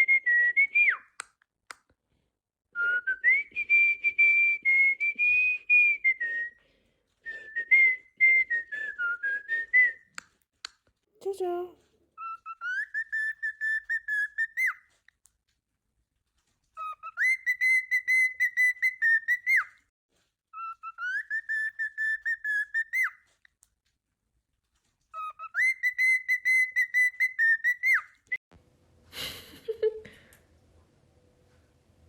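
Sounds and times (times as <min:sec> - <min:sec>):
cockatiel whistling: 0:12.2 - 0:14.8, 0:16.8 - 0:19.7, 0:20.6 - 0:23.2, 0:25.2 - 0:28.3.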